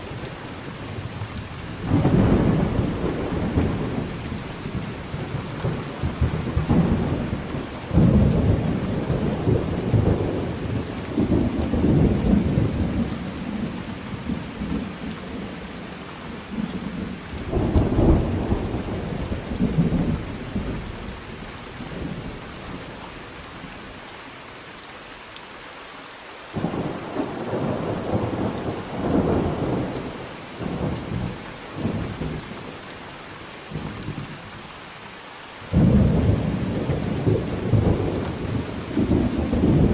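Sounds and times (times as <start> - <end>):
steady rain: 0.0 - 39.9
rolling thunder: 1.8 - 14.8, 17.4 - 22.9, 35.7 - 39.9.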